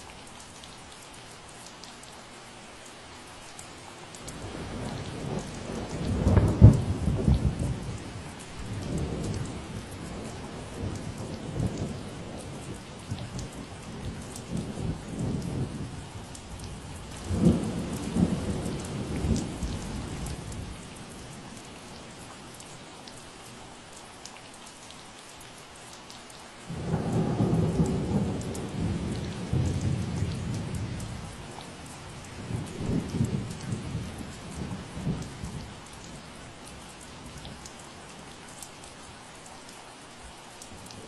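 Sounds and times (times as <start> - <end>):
steady rain: 0.0 - 41.0
low thunder rumble: 8.6 - 21.3, 26.7 - 35.7.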